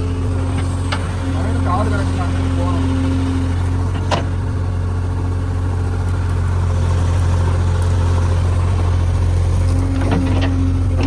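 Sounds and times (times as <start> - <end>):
diesel engine humming: 0.0 - 11.0.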